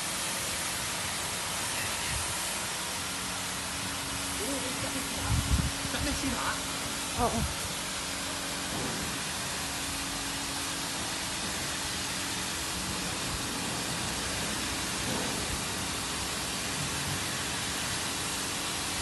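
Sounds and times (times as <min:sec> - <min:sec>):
car wash machine rushing hiss: 0:00.0 - 0:19.0.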